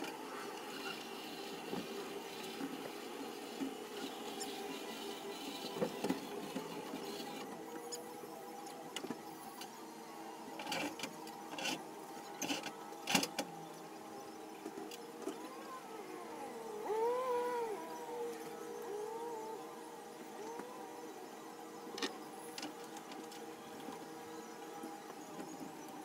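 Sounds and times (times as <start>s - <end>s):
wavering whine: 13.6s - 25.9s.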